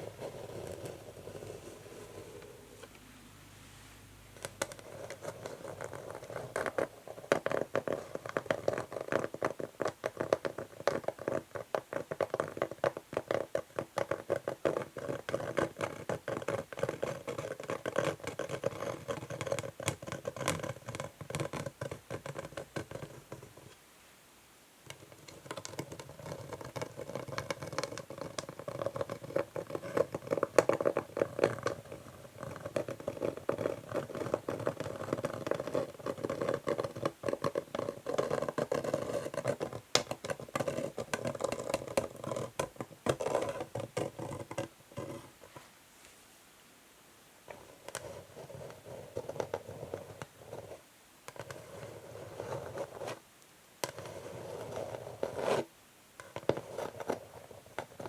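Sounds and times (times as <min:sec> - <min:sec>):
fingernails scratching on wooden board: 0:25.0 - 0:45.3, 0:53.8 - 0:58.0.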